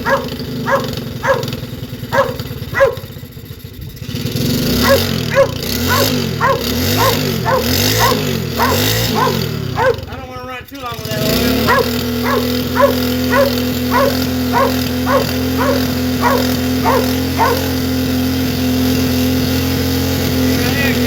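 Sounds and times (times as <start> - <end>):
dog barking: 0.0 - 3.2, 4.8 - 10.2, 11.5 - 17.9
pit bike engine revving: 0.0 - 21.0.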